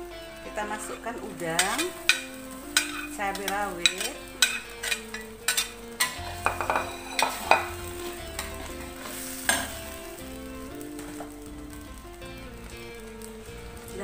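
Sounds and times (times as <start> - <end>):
paste sizzling in oil: 0.0 - 14.0
metal spatula scraping a wok: 1.6 - 10.2.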